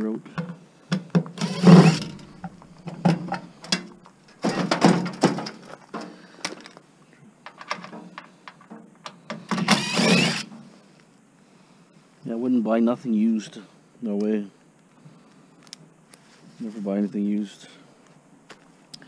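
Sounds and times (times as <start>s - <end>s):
sheet metal clattering and scraping: 4.4s - 5.7s.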